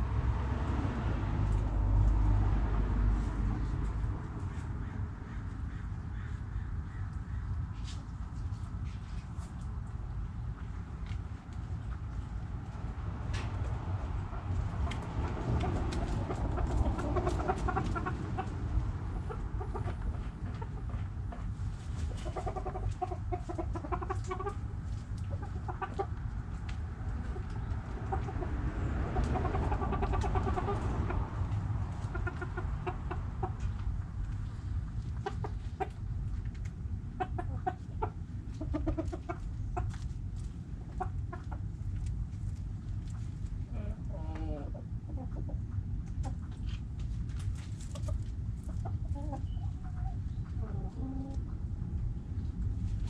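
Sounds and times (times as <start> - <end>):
steady low rumble: 0.0 - 53.0
hens clucking: 10.4 - 52.5.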